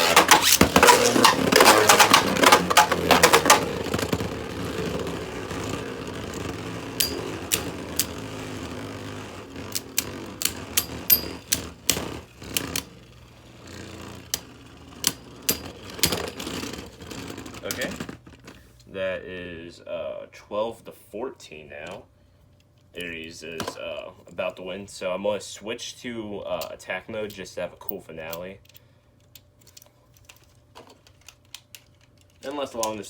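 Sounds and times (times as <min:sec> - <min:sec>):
spinning tops clashing: 0:00.0 - 0:18.0
clicks of spinning tops: 0:00.0 - 0:18.4
spinning top whirring: 0:00.0 - 0:18.4.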